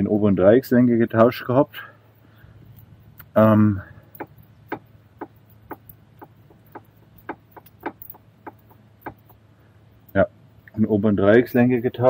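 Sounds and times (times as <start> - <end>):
low steady hum: 0.0 - 12.0
light knocks or clicks: 4.1 - 9.4.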